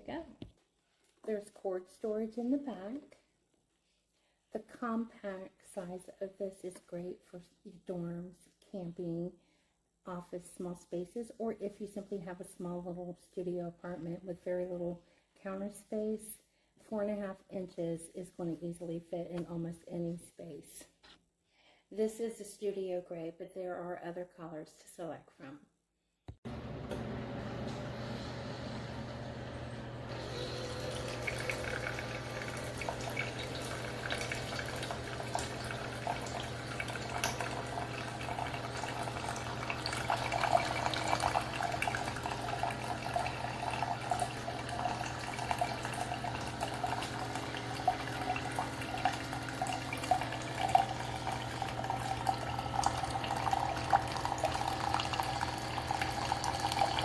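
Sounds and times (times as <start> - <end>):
liquid trickling into container: 30.1 - 57.0.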